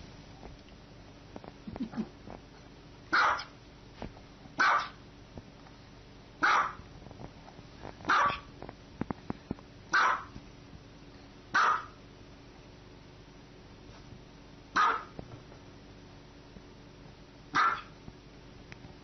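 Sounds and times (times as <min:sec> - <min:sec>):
small dog barking: 0:03.1 - 0:03.6, 0:04.6 - 0:05.0, 0:06.4 - 0:06.8, 0:08.1 - 0:08.5, 0:09.9 - 0:10.4, 0:11.5 - 0:12.0, 0:14.7 - 0:15.2, 0:17.5 - 0:18.0.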